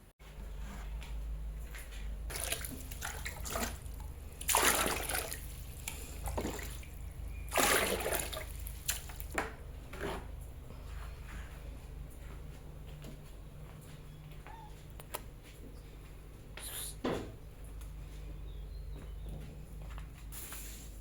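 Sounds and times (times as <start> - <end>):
low steady hum: 0.0 - 20.6
water splashing and pouring: 2.3 - 9.4.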